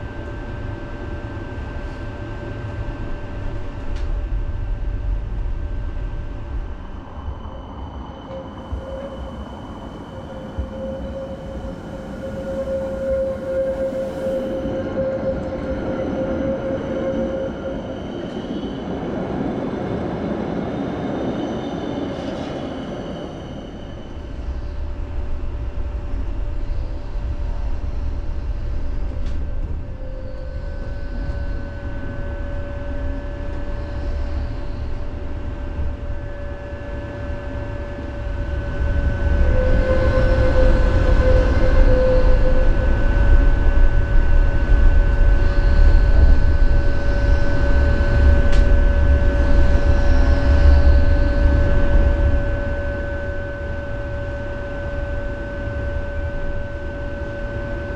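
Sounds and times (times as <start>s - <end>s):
thin steady whine: 0.0s - 17.8s
tram rumbling on rails: 0.0s - 57.9s.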